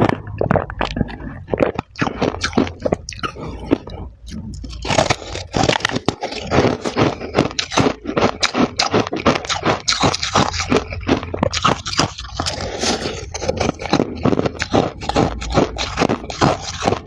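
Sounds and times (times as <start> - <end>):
ice frost being scraped: 4.9 - 17.0.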